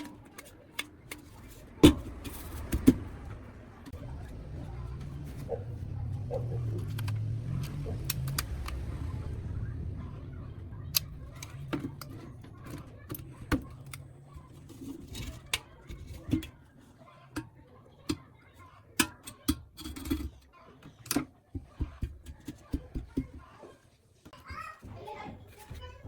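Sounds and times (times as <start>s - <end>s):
hard objects clicking and knocking: 0.0s - 8.8s, 10.9s - 16.7s
low rumble: 2.3s - 14.5s.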